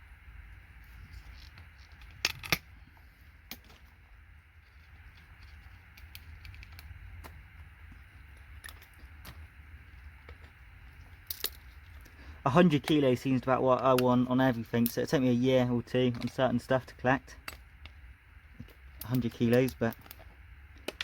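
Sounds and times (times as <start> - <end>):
low steady hum: 0.0 - 21.0
tools and components clinking: 10.2 - 12.0.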